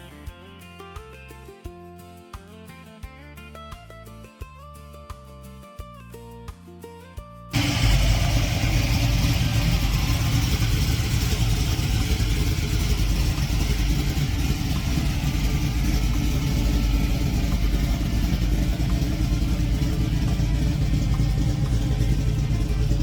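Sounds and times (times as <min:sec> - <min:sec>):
engine low rumble: 0:07.5 - 0:23.0
engine hiss: 0:07.6 - 0:23.0.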